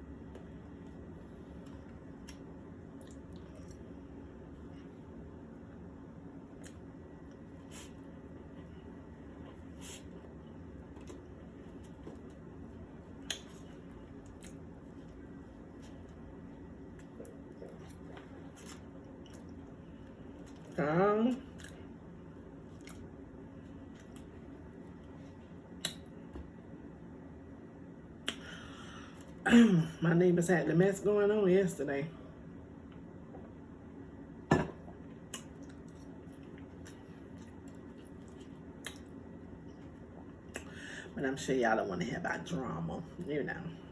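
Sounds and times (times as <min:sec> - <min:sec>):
faint room hum: 0:00.0 - 0:43.9
person chewing: 0:22.6 - 0:24.5, 0:35.2 - 0:39.3.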